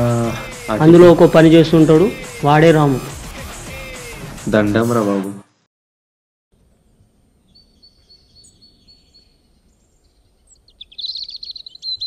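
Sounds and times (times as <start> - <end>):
faint outdoor background noise: 6.6 - 12.0
birds chirping: 6.7 - 12.0.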